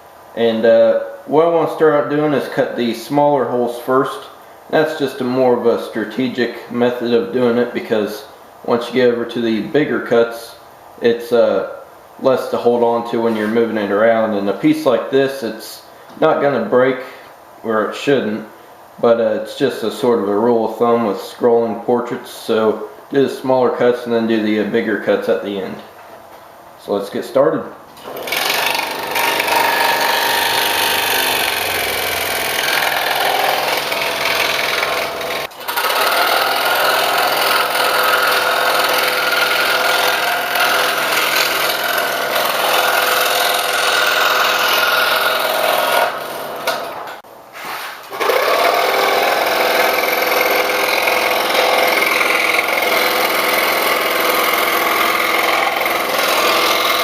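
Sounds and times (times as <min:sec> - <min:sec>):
scroll saw cutting plywood: 0:28.0 - 0:57.0.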